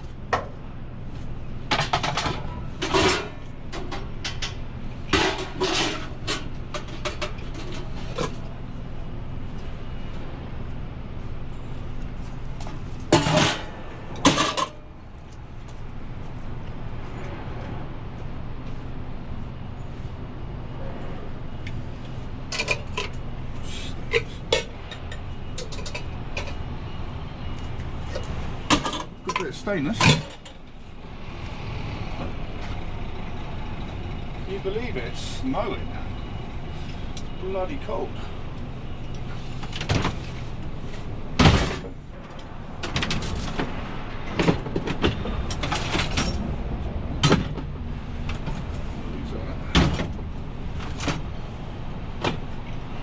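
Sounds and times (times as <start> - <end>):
scrap metal clanking: 1.7 - 4.5, 5.1 - 8.4, 13.1 - 14.8
scrap metal clinking and clanking: 1.7 - 8.5, 13.1 - 14.9, 22.5 - 23.2, 24.1 - 26.6, 28.1 - 30.6, 42.8 - 46.6.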